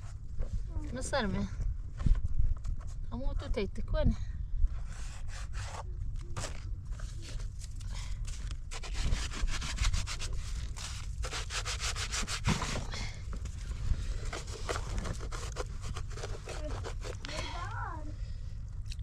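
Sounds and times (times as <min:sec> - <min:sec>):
steady low rumble: 0:00.0 - 0:19.0
rapid scraping strokes: 0:08.7 - 0:12.9, 0:13.7 - 0:17.7.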